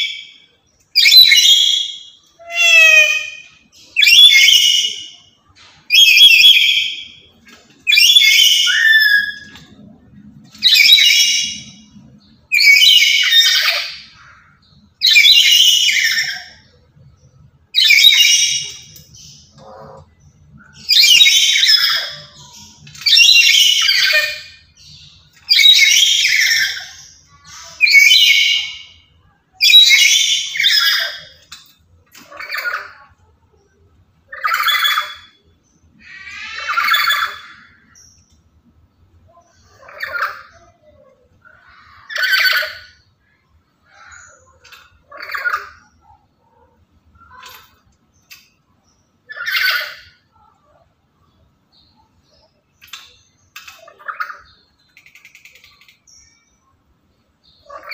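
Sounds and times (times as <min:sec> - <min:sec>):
parrot squawking harshly: 0:01.0 - 0:05.0, 0:36.0 - 0:37.8.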